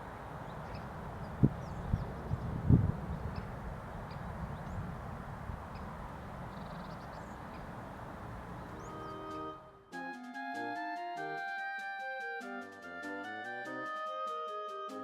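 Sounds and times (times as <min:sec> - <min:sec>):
faint bird calls: 0:05.7 - 0:09.6
music: 0:08.7 - 0:15.0.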